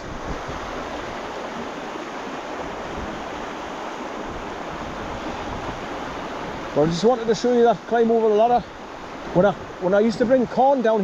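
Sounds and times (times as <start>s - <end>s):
wind buffeting microphone: 0.0s - 10.5s
waterfall rushing: 0.0s - 11.0s.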